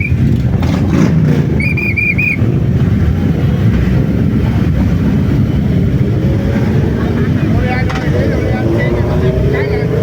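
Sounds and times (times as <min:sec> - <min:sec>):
high-pitched whistle pips: 0:00.0 - 0:00.2, 0:01.6 - 0:02.4
motorcycle engines rumbling: 0:00.0 - 0:10.0.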